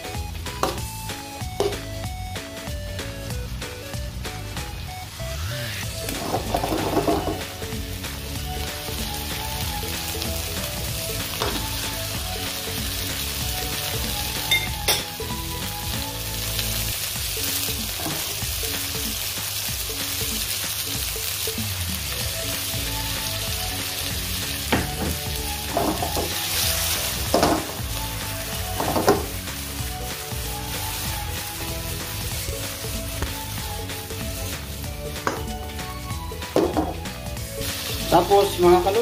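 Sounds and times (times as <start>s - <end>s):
food sizzling in hot oil: 0.0s - 39.0s
spatula scraping and knocking pan: 6.1s - 7.5s, 24.7s - 27.9s, 28.6s - 29.4s.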